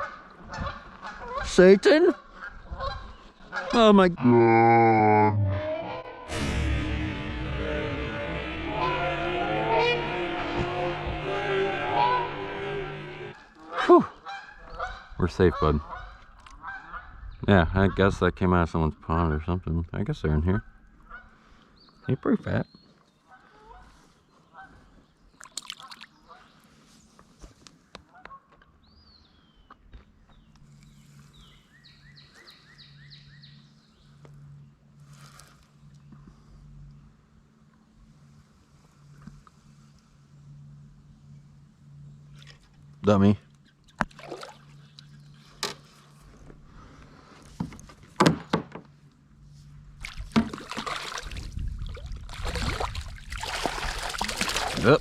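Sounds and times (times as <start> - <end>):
songbird singing: 21.6 - 23.3, 28.7 - 34.9, 41.2 - 46.2
water sloshing and splashing: 25.4 - 26.2, 43.8 - 45.4, 49.9 - 55.0
hollow knocks on canoe hull: 47.6 - 48.8.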